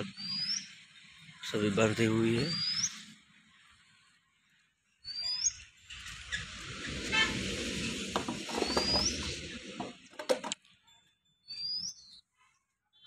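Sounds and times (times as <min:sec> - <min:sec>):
bird whistled call: 0:00.1 - 0:00.7, 0:05.0 - 0:05.6, 0:11.4 - 0:12.2
rumbling outdoor noise: 0:05.6 - 0:10.6
sharp knocks: 0:08.1 - 0:10.6.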